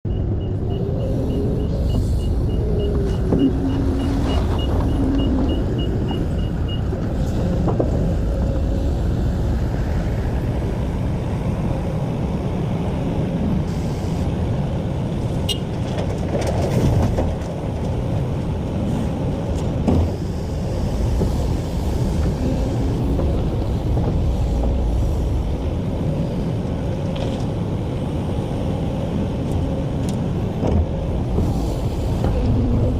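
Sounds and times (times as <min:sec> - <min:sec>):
diesel engines rumbling: 0:00.0 - 0:32.9
reversing alarm beeping: 0:00.1 - 0:06.9.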